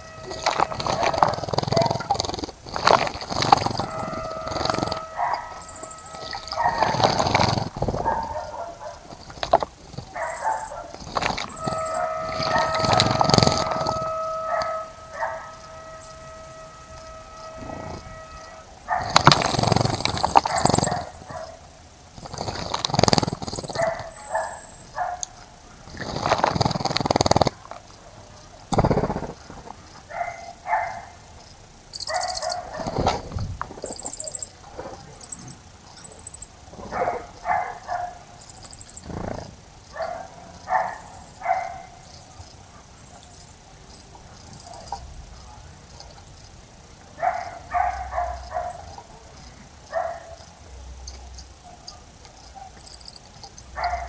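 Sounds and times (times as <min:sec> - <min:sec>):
rushes of noise: 0:00.0 - 0:21.3
bird chirps: 0:00.0 - 0:21.6, 0:30.3 - 0:36.6, 0:37.4 - 0:39.0, 0:40.7 - 0:46.6, 0:50.2 - 0:54.0
dog barking: 0:00.0 - 0:21.7, 0:23.5 - 0:26.3, 0:30.0 - 0:31.3, 0:32.0 - 0:35.3, 0:36.8 - 0:38.4, 0:39.9 - 0:43.4, 0:47.2 - 0:54.0.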